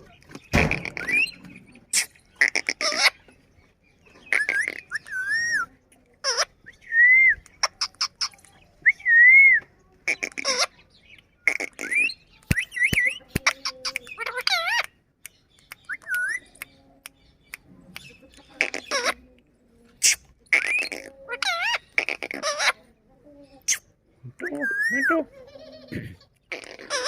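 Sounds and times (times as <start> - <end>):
parrot chattering: 0.8 - 3.2, 6.2 - 6.6, 7.6 - 8.4, 10.0 - 10.8, 11.4 - 12.2, 12.8 - 15.0, 18.4 - 19.2, 20.0 - 22.9, 23.6 - 27.0.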